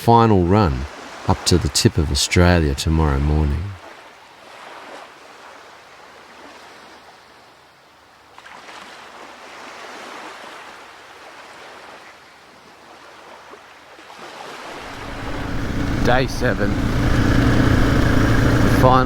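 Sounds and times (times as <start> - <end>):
waves washing onto beach: 3.8 - 7.5, 8.2 - 19.0.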